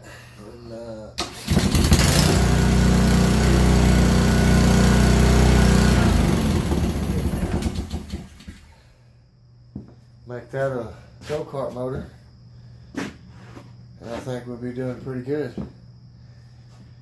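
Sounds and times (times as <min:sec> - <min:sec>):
small engine running: 0:01.3 - 0:08.6.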